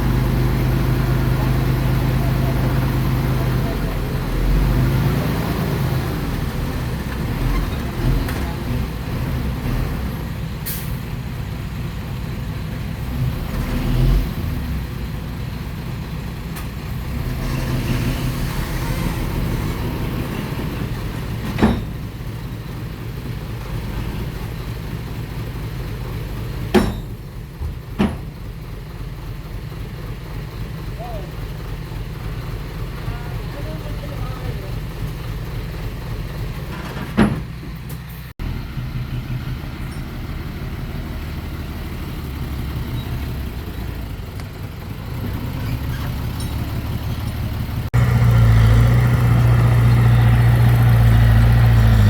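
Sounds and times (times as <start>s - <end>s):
heavy diesel engine running: 0.0s - 52.0s
sharp metallic knocks: 26.7s - 27.3s.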